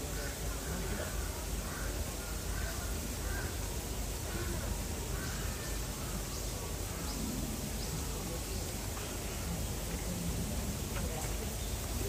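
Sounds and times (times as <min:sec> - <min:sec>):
bird calling: 0:00.1 - 0:10.0.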